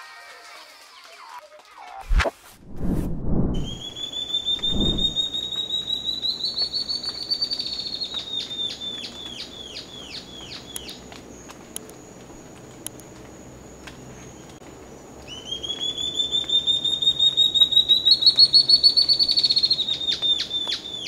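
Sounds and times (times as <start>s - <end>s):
bird singing whistled notes: 3.6s - 11.0s, 15.2s - 21.0s.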